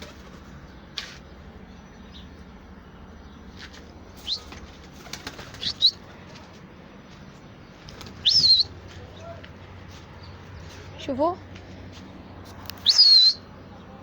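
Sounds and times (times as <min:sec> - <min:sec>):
pigeon wings flapping: 0:00.0 - 0:00.5, 0:04.2 - 0:06.6, 0:07.9 - 0:08.6.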